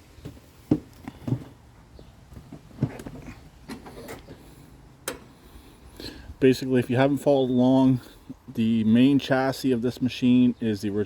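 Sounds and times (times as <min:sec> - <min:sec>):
short clicks and knocks: 0:05.0 - 0:05.3.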